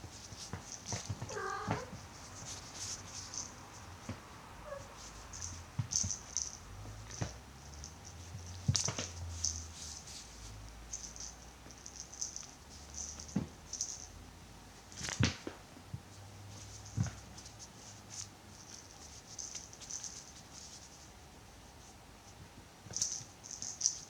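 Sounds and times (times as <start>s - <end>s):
soft knocks and scratches: 0.0s - 7.4s.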